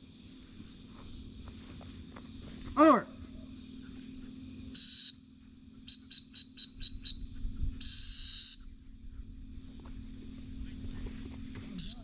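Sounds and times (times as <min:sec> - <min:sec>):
whistle blasts and toots: 0:04.7 - 0:08.9, 0:11.8 - 0:12.0.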